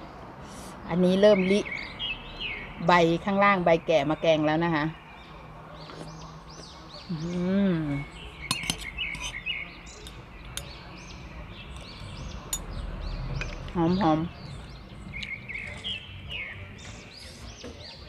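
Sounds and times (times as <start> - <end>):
songbirds chirping: 0.0 - 18.0
spoons clinking against glass dish: 8.4 - 9.4.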